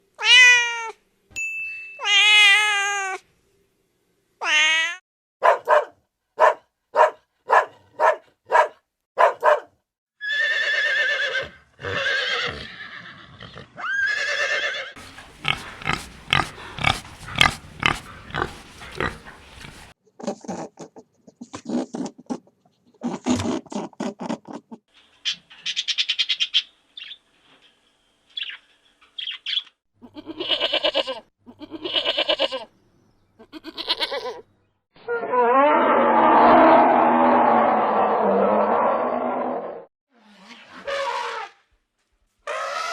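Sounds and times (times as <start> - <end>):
animal calls: 13.4 - 19.9.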